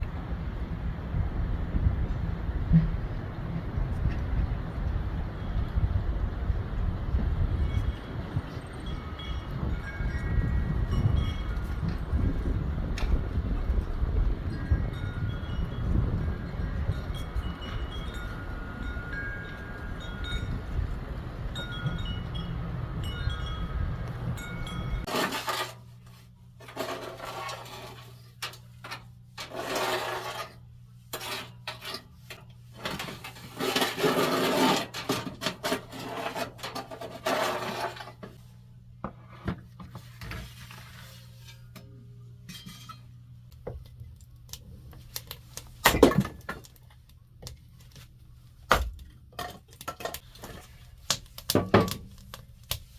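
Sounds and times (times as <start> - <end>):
low hum: 0.0 - 25.1
wind noise: 0.0 - 25.1
wind chime tinkling: 7.5 - 12.3, 14.4 - 25.1.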